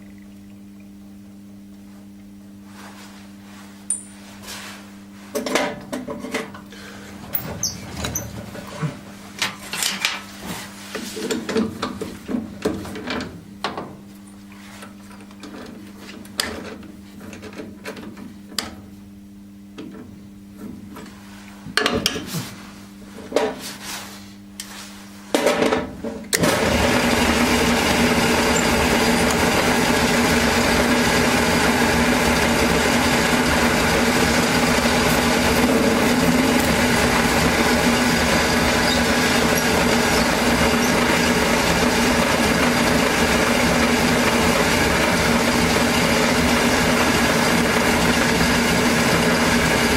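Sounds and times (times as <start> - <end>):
steady hum: 0.0 - 16.2
power tool running: 26.4 - 49.9.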